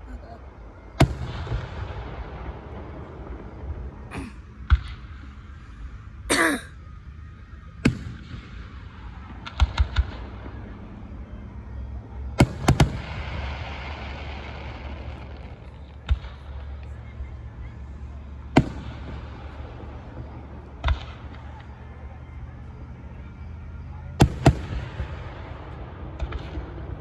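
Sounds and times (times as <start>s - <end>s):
fireworks bangs: 0.9s - 5.4s, 12.4s - 17.0s, 18.3s - 21.7s.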